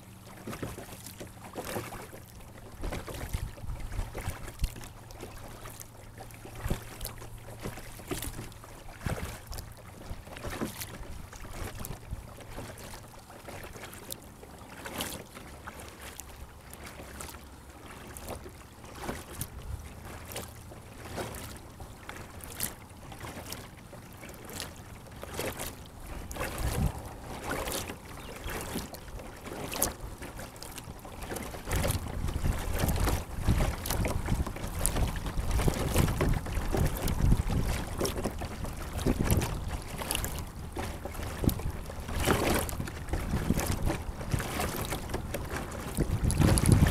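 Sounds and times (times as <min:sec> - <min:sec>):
wind rumble on microphone: 0:02.7 - 0:05.6, 0:06.5 - 0:12.9, 0:19.2 - 0:20.2, 0:26.0 - 0:46.9
water splashing and dripping: 0:30.6 - 0:46.9.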